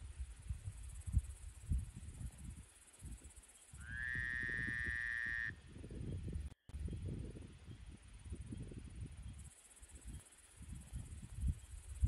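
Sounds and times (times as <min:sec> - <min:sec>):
wind rumble on microphone: 0:00.0 - 0:12.0
insects trilling: 0:00.7 - 0:05.6.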